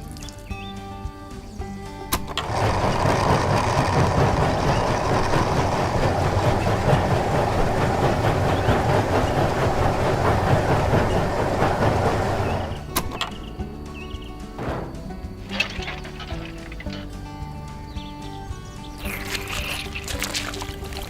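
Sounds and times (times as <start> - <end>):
small machine motor running: 2.4 - 12.9.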